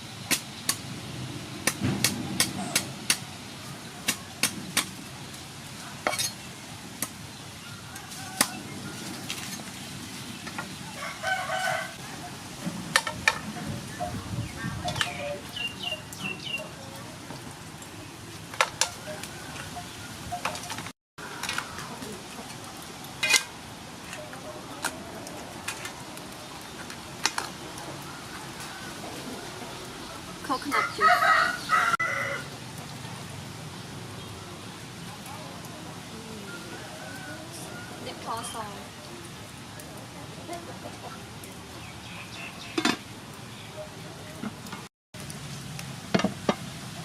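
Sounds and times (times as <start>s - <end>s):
birds calling: 1.5s - 35.4s, 36.3s - 44.7s
rooster crowing: 7.6s - 9.2s, 10.9s - 12.1s, 28.1s - 29.6s, 30.7s - 32.5s, 36.4s - 38.2s.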